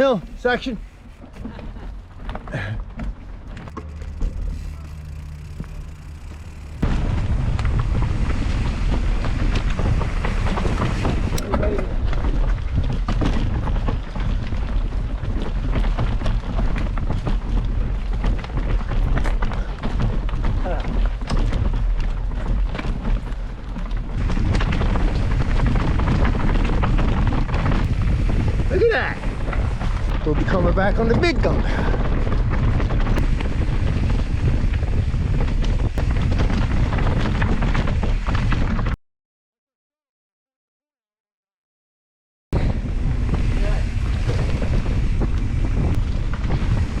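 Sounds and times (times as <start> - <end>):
mountain bike rattling: 0.0 - 39.0, 42.6 - 47.0
wind on microphone: 3.8 - 39.0, 42.6 - 47.0.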